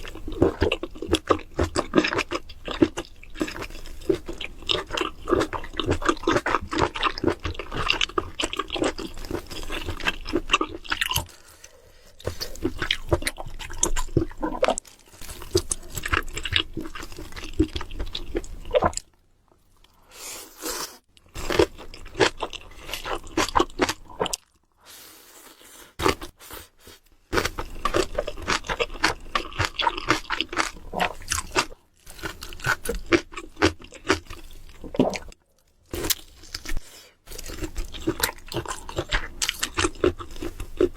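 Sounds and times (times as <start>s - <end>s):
crunchy bites and chewing: 0.0s - 19.2s, 21.2s - 24.7s, 27.3s - 40.9s.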